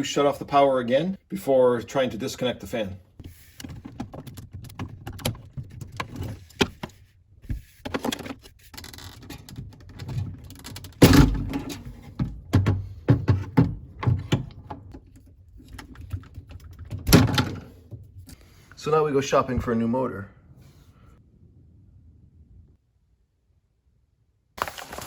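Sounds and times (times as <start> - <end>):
clicks knocks and rattles: 7.8 - 18.1.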